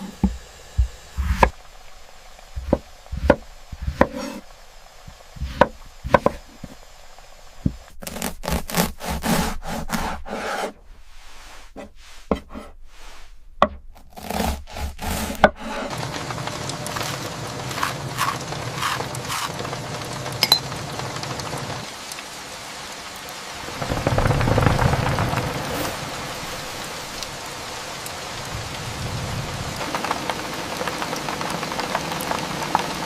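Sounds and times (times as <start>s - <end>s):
knife cutting on wooden board: 2.6s - 4.4s, 5.4s - 6.8s, 8.0s - 10.8s, 11.8s - 12.8s, 13.6s - 15.9s, 17.7s - 19.5s.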